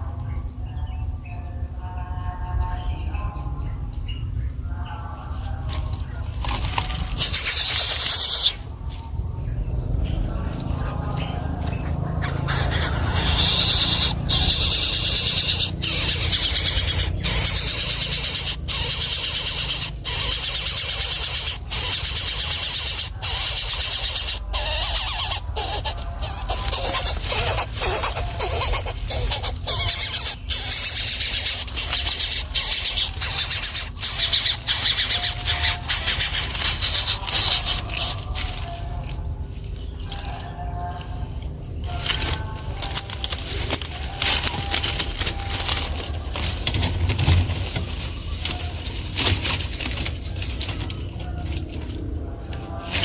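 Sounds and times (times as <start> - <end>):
low rumble: 0.0 - 34.3
nestling birds begging calls: 2.6 - 53.0.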